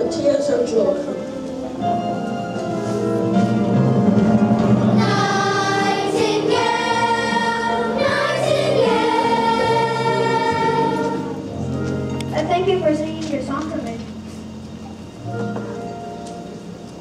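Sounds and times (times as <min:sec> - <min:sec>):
musical accompaniment: 0:00.0 - 0:17.0
children singing: 0:05.0 - 0:11.5.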